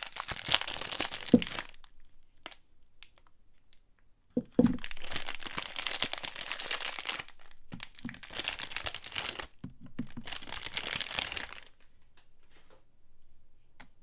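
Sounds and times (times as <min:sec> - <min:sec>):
wrapper crinkling and tearing: 0:00.0 - 0:03.3, 0:04.4 - 0:11.8.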